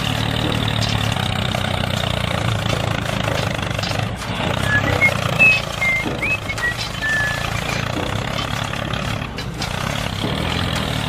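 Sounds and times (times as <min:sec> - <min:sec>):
small vehicle motor humming: 0:00.0 - 0:11.0
short high chirps: 0:04.6 - 0:07.7.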